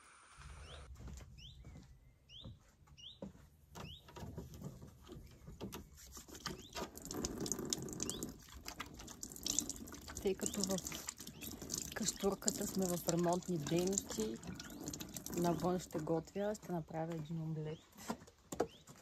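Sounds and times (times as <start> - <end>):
small bird chirping: 0.6 - 3.2, 3.8 - 4.1, 5.1 - 8.4, 9.4 - 12.7, 13.6 - 15.8, 18.6 - 19.0.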